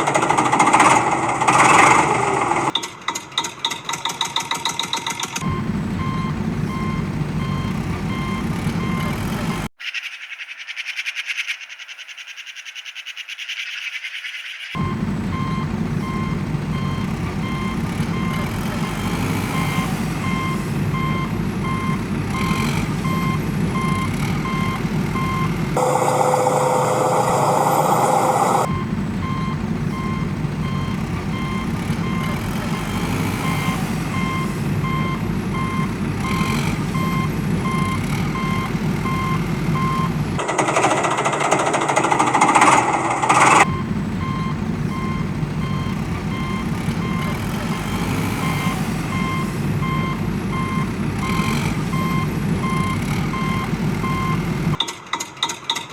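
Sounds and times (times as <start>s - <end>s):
truck engine rumbling: 0.0s - 9.8s, 14.8s - 55.9s
reversing alarm beeping: 5.4s - 9.7s, 14.8s - 54.8s.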